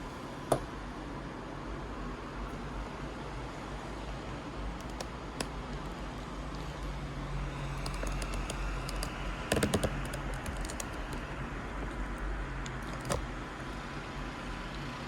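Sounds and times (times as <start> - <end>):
light clicks and taps: 7.6 - 13.3.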